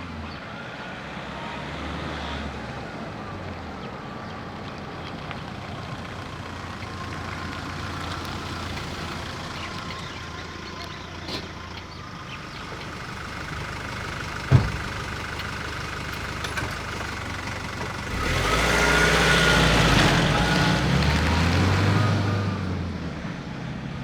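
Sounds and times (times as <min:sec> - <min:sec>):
diesel engine running: 0:03.3 - 0:24.0
sharp thump: 0:14.5 - 0:15.0.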